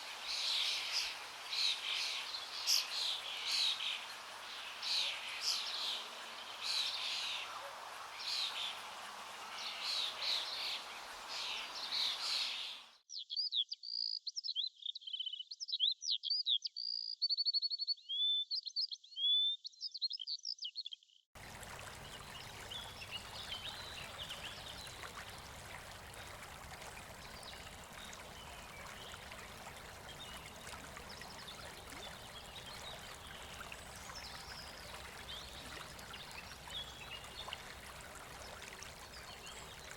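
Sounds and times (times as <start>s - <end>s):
wild birds singing: 21.4s - 39.9s.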